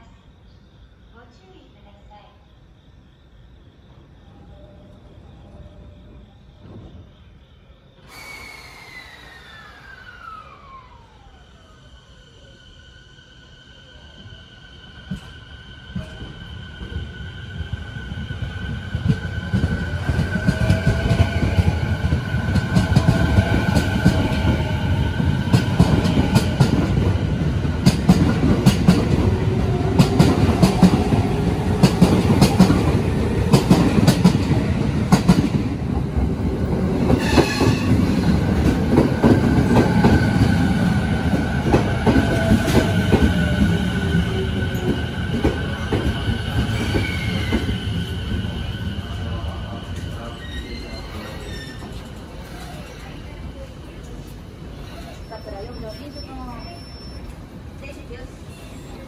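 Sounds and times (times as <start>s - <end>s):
train braking with falling whine: 3.7s - 59.0s
electric train motor whine: 8.0s - 34.9s.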